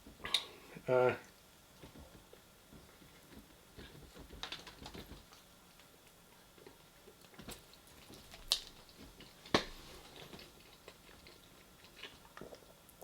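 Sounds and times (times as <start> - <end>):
person chewing: 10.0 - 13.0.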